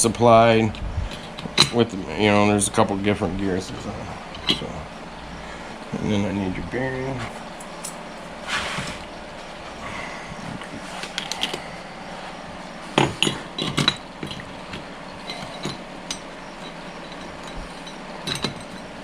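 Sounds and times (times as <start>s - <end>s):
metal parts clinking and knocking: 1.1s - 1.8s, 11.0s - 11.6s, 13.0s - 19.0s.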